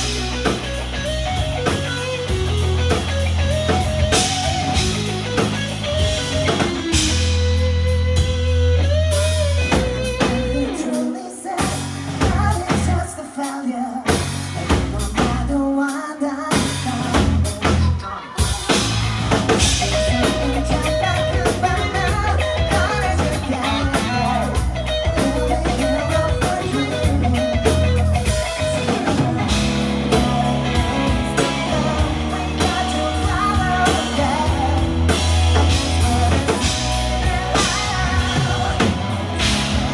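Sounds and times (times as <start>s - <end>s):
rock band playing: 0.0s - 13.2s, 14.1s - 15.6s, 16.5s - 39.9s
person singing: 10.2s - 18.8s, 19.7s - 39.9s.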